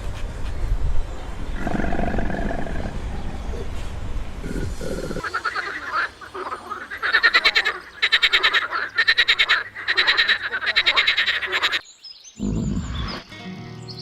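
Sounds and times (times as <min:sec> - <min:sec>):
frog croaking: 0:01.6 - 0:03.1, 0:04.4 - 0:11.8.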